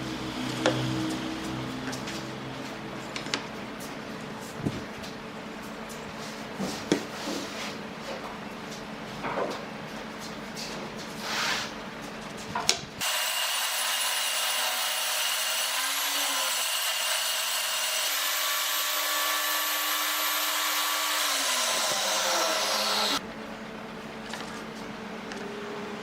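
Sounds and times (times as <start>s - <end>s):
power tool whining on wood: 13.0s - 23.2s.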